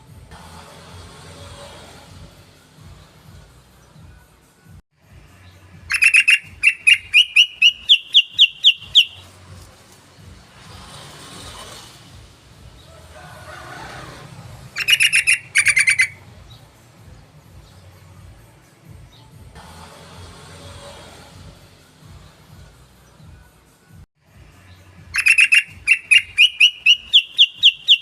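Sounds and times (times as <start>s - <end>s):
bird chattering song: 5.8s - 9.3s, 14.8s - 16.6s, 24.8s - 28.0s.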